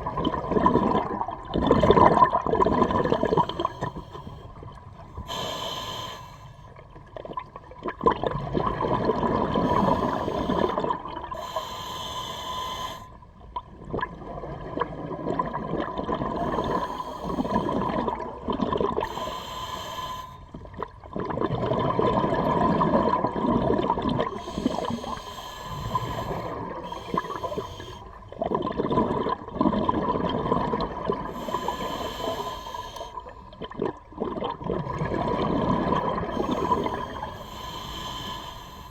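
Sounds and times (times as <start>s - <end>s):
bubbling rush on exhale: 0.0s - 13.0s, 13.8s - 38.9s
regulator hiss on inhale: 3.3s - 4.6s, 5.2s - 6.8s, 9.6s - 10.8s, 11.4s - 13.2s, 16.4s - 18.1s, 19.0s - 20.6s, 24.3s - 28.2s, 31.3s - 33.4s, 36.3s - 38.9s.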